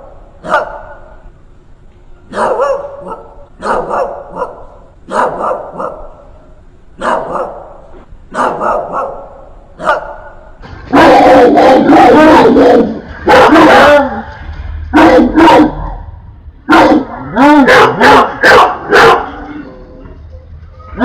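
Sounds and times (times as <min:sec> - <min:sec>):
loud continuous sound: 0:00.0 - 0:21.0
dog barking aggressively: 0:00.4 - 0:01.0, 0:02.3 - 0:06.2, 0:07.0 - 0:14.2, 0:14.9 - 0:16.0, 0:16.7 - 0:19.4.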